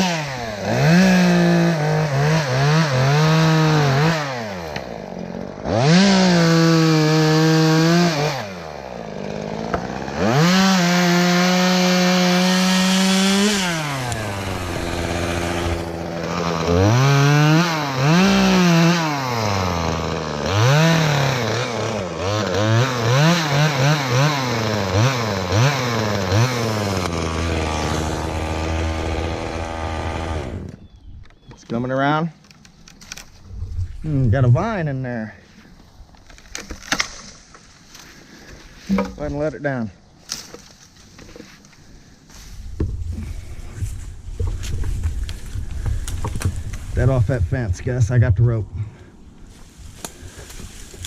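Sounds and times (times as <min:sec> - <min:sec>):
chainsaw cutting wood: 0:00.0 - 0:30.8, 0:49.9 - 0:51.0.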